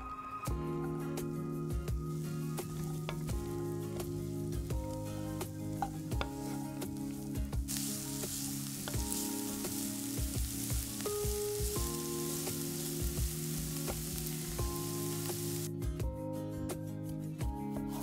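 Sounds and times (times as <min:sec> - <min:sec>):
background music with steady beat: 0:00.0 - 0:18.0
food sizzling in oil: 0:01.8 - 0:15.7.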